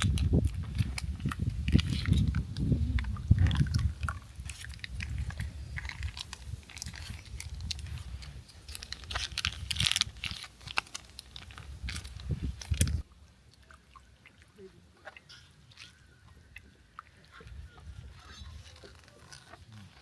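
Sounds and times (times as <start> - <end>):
small irregular clicks: 0.0 - 13.6
chewing and crunching food: 0.0 - 20.0.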